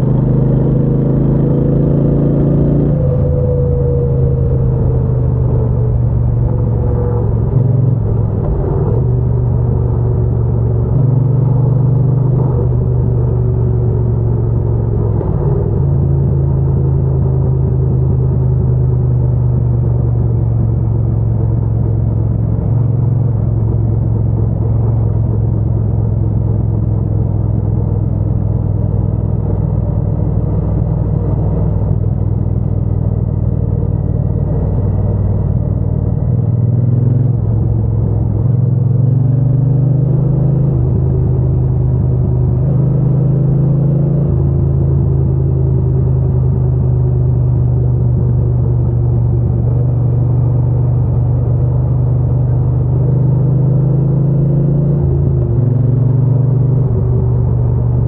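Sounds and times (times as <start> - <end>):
motorcycle engine rumbling: 2.9 - 39.3.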